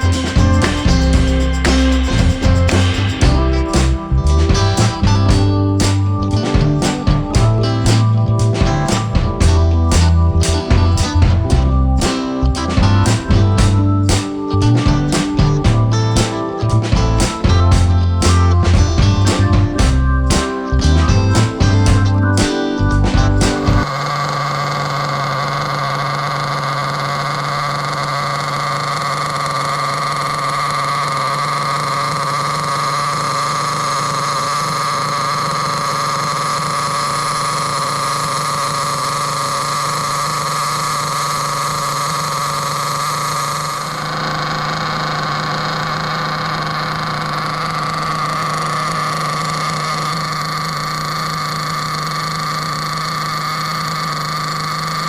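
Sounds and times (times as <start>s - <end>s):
small nitro engine running: 0.0s - 4.2s, 23.8s - 55.0s.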